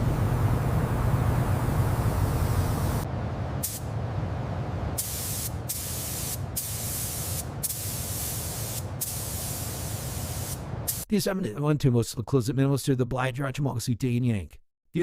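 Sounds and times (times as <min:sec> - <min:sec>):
steady low hum: 0:00.0 - 0:10.9
pressurised spray hissing: 0:03.6 - 0:03.9, 0:05.0 - 0:11.1.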